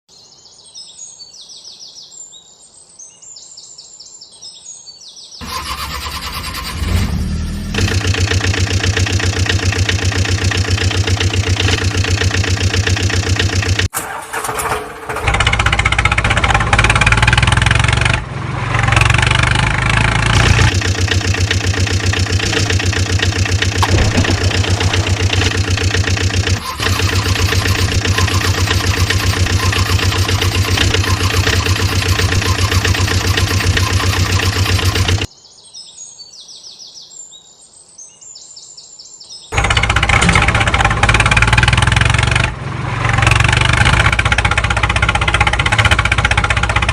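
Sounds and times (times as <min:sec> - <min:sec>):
engine chugging: 0:05.4 - 0:35.3, 0:39.6 - 0:46.9
birds chirping: 0:20.3 - 0:39.6.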